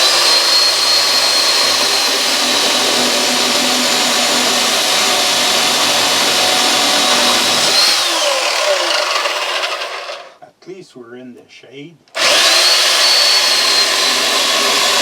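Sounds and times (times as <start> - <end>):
electric chainsaw running: 0.0 - 10.4, 12.2 - 15.0.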